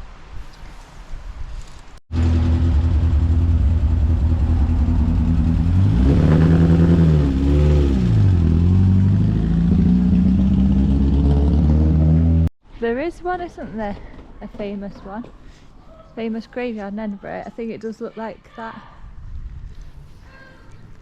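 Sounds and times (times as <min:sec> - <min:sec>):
engine running and revving: 0:02.1 - 0:12.5.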